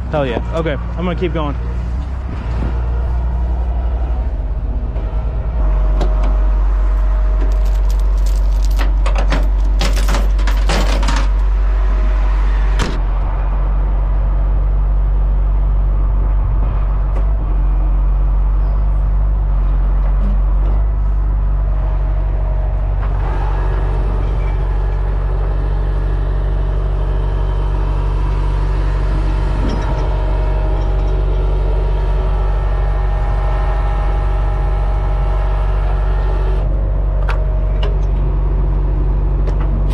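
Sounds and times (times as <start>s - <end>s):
heavy truck engine running: 0.0s - 39.9s
metallic clinking and rattling: 6.9s - 11.5s.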